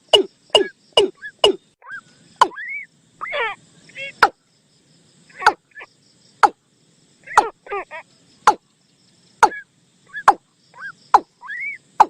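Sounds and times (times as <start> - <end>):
short wavering bird calls: 0.0 - 4.4, 7.2 - 12.0.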